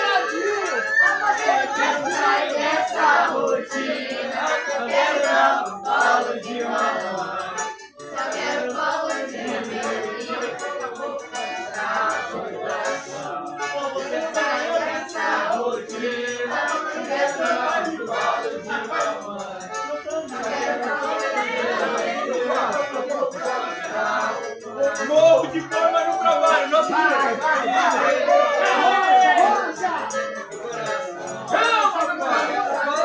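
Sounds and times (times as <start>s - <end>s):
group singing with music: 0.0s - 33.0s
rattle keeping time: 0.0s - 33.0s.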